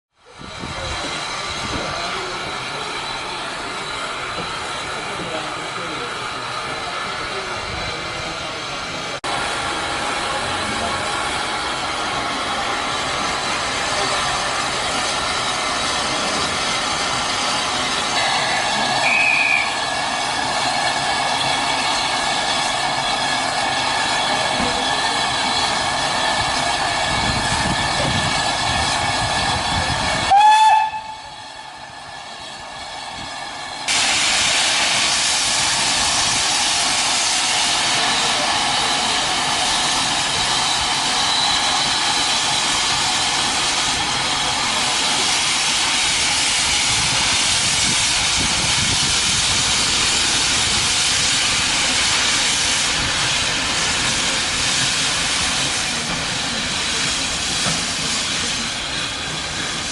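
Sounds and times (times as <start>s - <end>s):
steam hissing: 0.3s - 59.9s
steam locomotive whistle: 18.2s - 20.0s, 30.3s - 31.8s.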